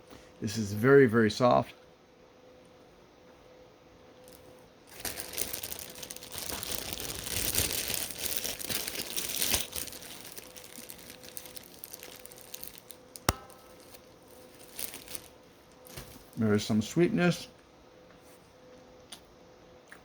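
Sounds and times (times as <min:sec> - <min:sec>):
plastic bag crinkling: 0:04.2 - 0:16.4.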